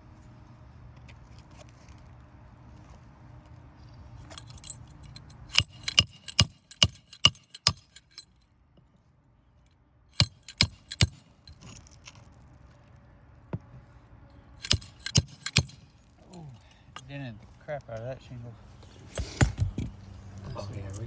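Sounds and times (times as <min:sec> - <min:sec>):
hammer striking roofing nails: 0:05.4 - 0:08.0, 0:10.2 - 0:11.3, 0:14.6 - 0:15.9, 0:19.2 - 0:19.9.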